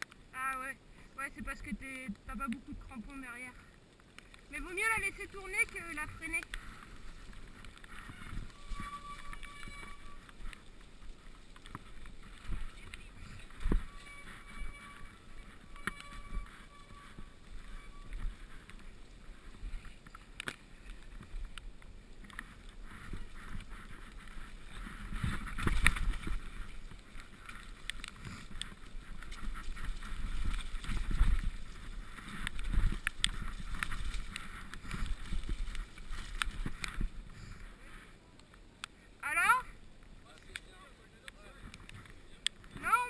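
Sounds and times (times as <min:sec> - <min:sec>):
wind rumble: 0:00.0 - 0:38.2
bike tyres on muddy ground: 0:00.0 - 0:43.0
bike rattles and knocks: 0:06.4 - 0:37.6.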